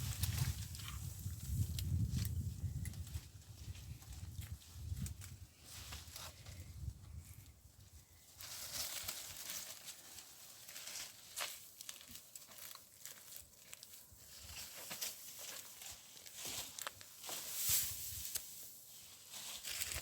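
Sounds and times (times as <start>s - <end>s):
material rustling and crackling: 8.4s - 20.0s.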